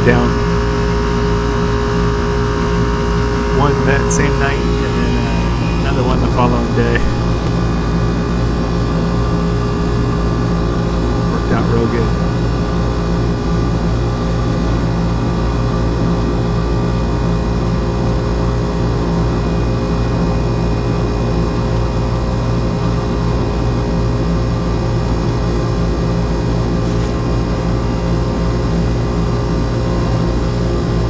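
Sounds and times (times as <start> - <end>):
air conditioner unit humming: 0.0 - 14.9.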